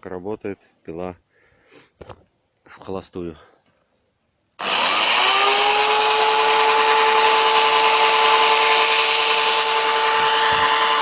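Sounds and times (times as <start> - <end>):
electric chainsaw whining: 4.6 - 11.0.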